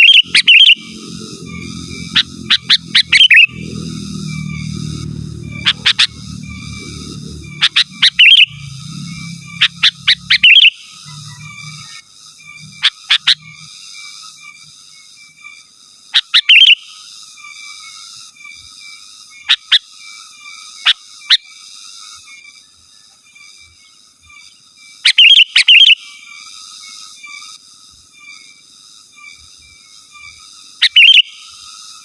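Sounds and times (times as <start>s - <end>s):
faint chirring: 0.0s - 13.8s.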